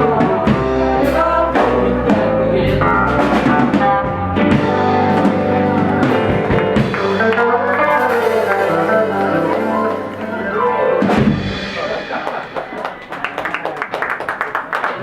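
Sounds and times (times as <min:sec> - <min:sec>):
electric guitar melody: 0:00.0 - 0:13.2
loud drum hit: 0:11.0 - 0:13.0
drum strokes: 0:11.0 - 0:13.3.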